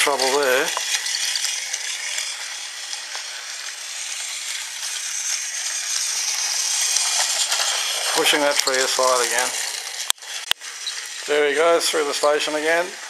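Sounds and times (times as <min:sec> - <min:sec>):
toy train rattling whir: 0:00.0 - 0:13.0.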